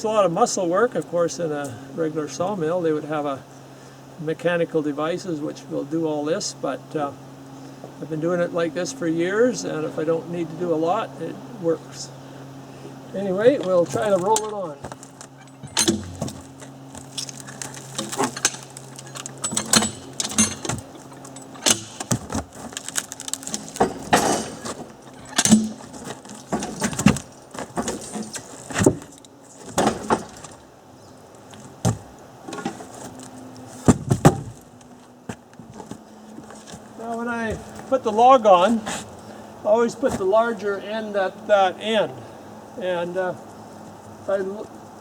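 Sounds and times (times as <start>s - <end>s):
low steady hum: 0.0s - 45.0s
log knocking and scraping: 13.4s - 30.6s, 31.4s - 39.2s.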